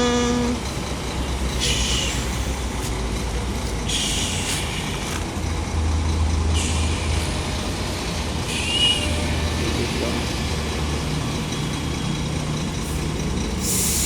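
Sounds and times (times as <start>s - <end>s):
excavator diesel engine rumbling: 0.0s - 14.0s
hiss with high squeal: 1.6s - 2.9s, 3.9s - 5.1s, 6.6s - 10.0s, 13.6s - 14.0s.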